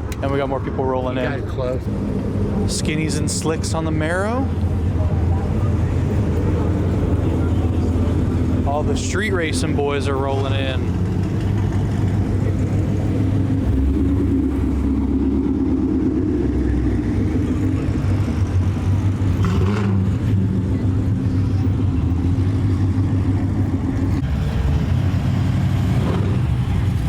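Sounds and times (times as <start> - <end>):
car engines rumbling: 0.0 - 27.0.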